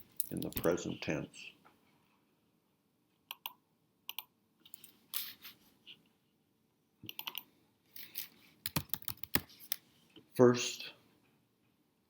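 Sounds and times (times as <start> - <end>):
computer keyboard typing: 3.3 - 4.3, 7.1 - 7.5, 8.6 - 9.8.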